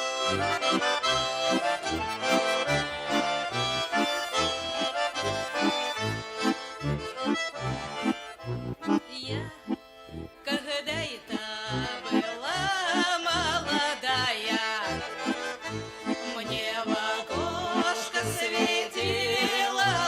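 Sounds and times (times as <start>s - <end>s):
accordion folk music: 0.0s - 20.0s.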